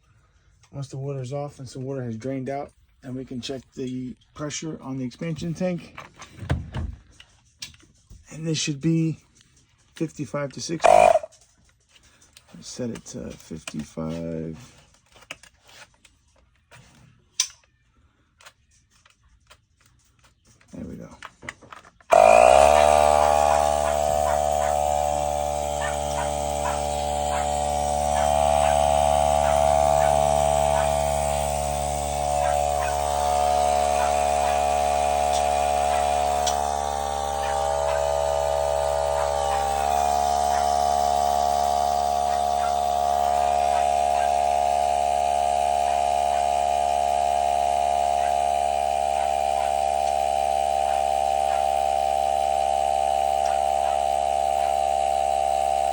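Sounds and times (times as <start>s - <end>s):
electric air inflator running: 10.8s - 11.4s, 22.1s - 55.9s.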